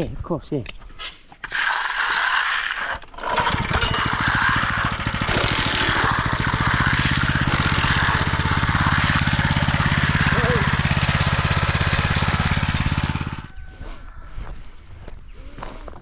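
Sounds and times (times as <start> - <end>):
engine starting and idling: 1.4 - 13.5.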